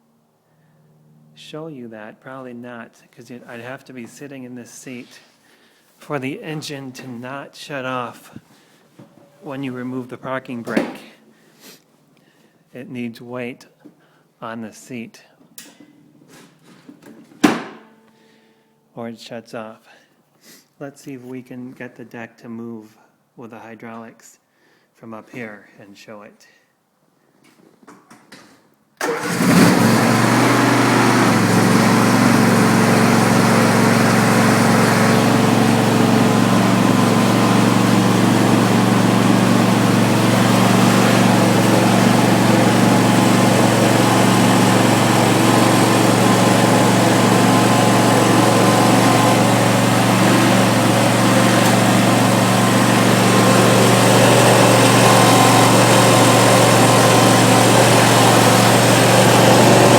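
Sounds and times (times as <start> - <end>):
garden tractor engine running: 29.0 - 59.9.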